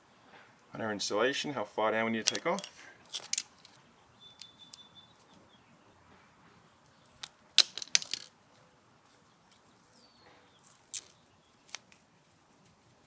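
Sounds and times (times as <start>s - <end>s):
metallic clinks of tools: 2.3s - 3.4s.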